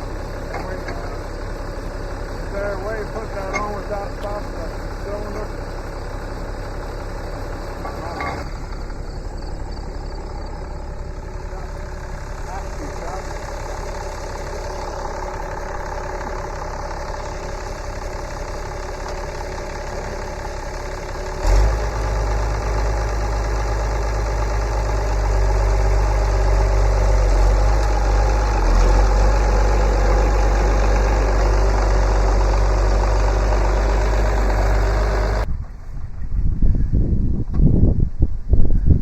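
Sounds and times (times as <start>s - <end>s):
tractor engine idling: 0.0s - 36.2s.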